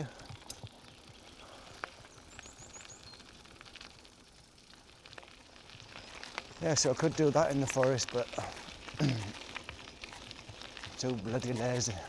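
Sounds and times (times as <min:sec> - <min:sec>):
faint steady rustle: 0:00.0 - 0:12.0
bird chirping: 0:01.5 - 0:03.5.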